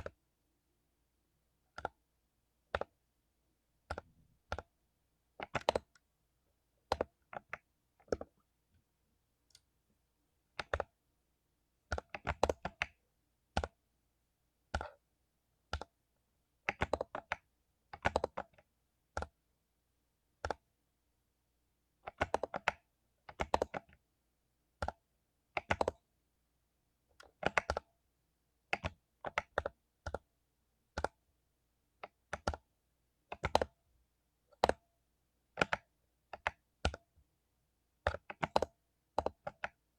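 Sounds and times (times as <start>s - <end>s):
mechanical keyboard typing: 1.7s - 2.0s, 2.7s - 3.0s, 3.8s - 4.8s, 5.4s - 6.0s, 10.6s - 11.0s, 11.9s - 13.0s, 13.6s - 13.8s, 14.7s - 15.0s, 15.7s - 16.0s, 16.7s - 19.4s, 20.4s - 20.7s, 22.0s - 24.0s, 24.8s - 26.1s, 27.1s - 27.9s, 28.7s - 30.3s, 30.9s - 31.2s, 32.0s - 32.7s, 33.3s - 33.8s, 34.5s - 34.8s, 35.5s - 37.2s, 38.0s - 39.8s.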